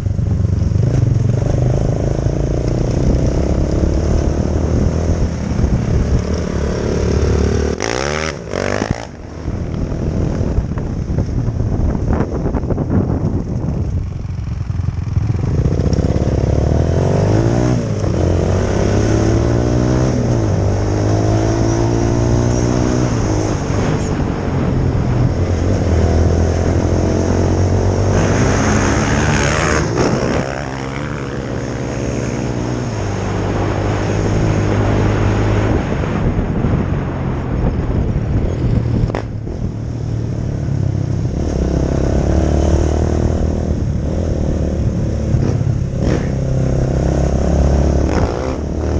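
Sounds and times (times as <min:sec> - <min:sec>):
dirt bike engine revving: 0:00.8 - 0:09.3, 0:15.0 - 0:24.0, 0:25.6 - 0:35.7, 0:41.4 - 0:48.9
burst of wind noise: 0:33.6 - 0:39.9.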